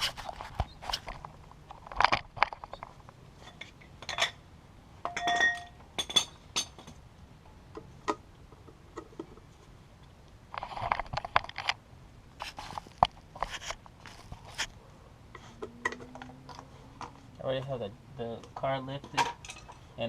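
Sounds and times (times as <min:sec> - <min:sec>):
short ringing clink: 0:05.1 - 0:05.8.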